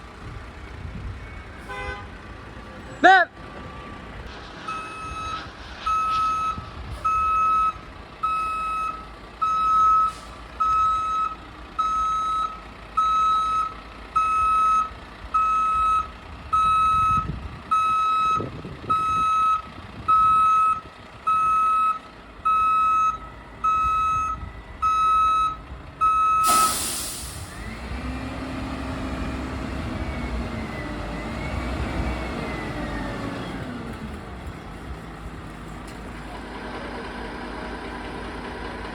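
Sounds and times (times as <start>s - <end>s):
truck engine running: 2.2s - 38.9s
truck backup alarm beeping: 3.5s - 33.6s
air brake hiss: 10.1s - 10.4s, 26.4s - 27.7s.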